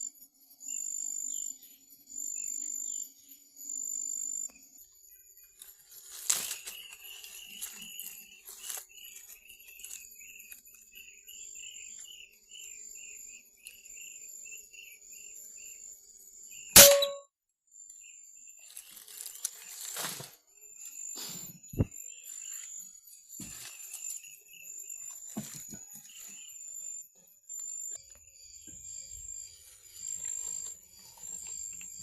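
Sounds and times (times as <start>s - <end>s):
short metallic ring: 16.8s - 17.2s.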